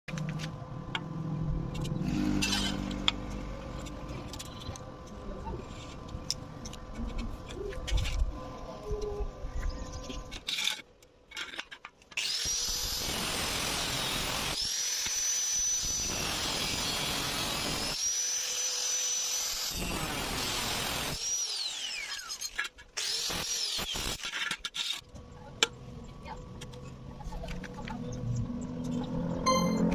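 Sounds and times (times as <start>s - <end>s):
angle grinder cutting metal: 2.0s - 3.4s, 12.2s - 25.0s.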